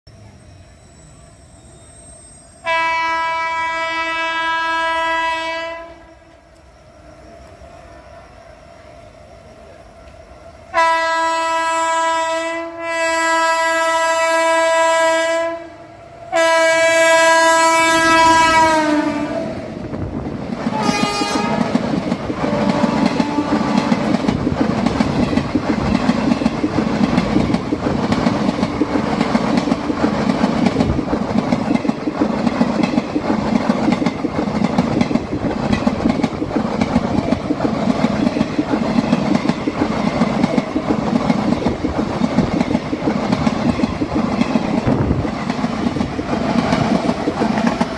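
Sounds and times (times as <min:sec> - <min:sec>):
locomotive horn blasts: 0:02.6 - 0:06.3, 0:10.7 - 0:19.4, 0:20.7 - 0:21.7, 0:22.5 - 0:23.8
train wagons rumbling: 0:17.2 - 0:47.9.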